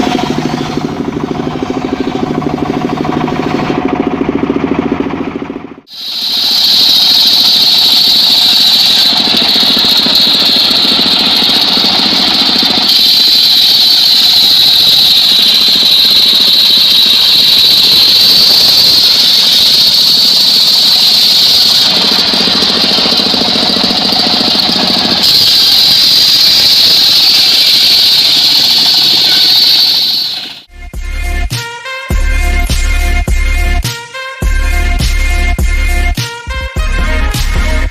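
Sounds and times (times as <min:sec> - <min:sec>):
saw blade whining: 0:00.0 - 0:04.6, 0:05.9 - 0:30.7
sawmill engine: 0:00.0 - 0:30.7.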